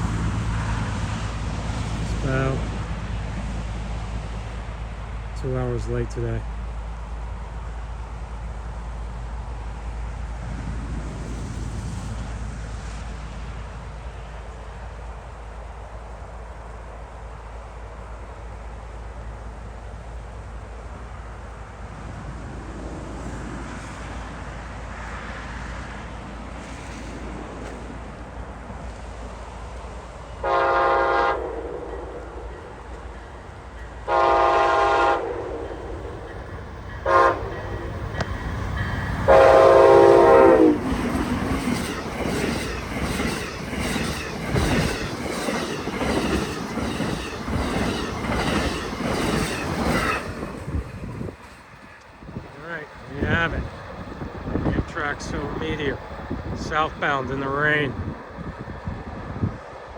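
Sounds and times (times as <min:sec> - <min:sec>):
locomotive air horn: 0:30.4 - 0:31.9, 0:34.1 - 0:35.7, 0:37.0 - 0:37.7, 0:39.3 - 0:40.8
train wheels clicking on rails: 0:31.9 - 0:58.6.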